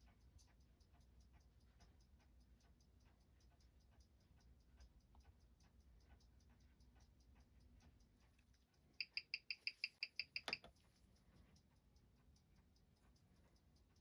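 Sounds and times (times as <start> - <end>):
watch ticking: 0.0 - 14.0.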